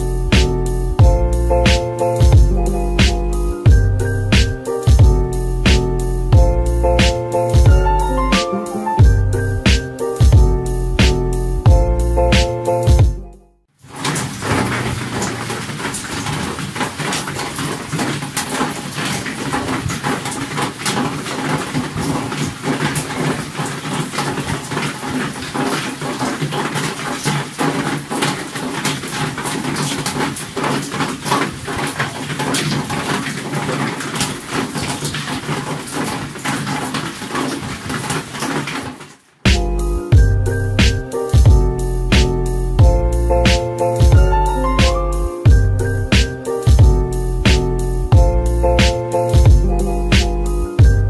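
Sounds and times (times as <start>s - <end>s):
heavy rain falling: 13.8s - 39.4s.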